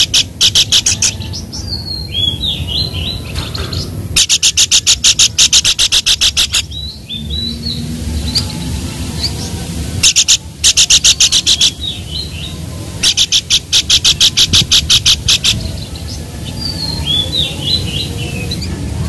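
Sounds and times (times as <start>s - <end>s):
bird calling sharp repeated notes: 0.0s - 1.2s, 4.2s - 7.6s, 10.0s - 12.3s, 13.0s - 15.7s
steady low rumble: 0.0s - 19.0s
soft high chirps: 4.2s - 15.8s.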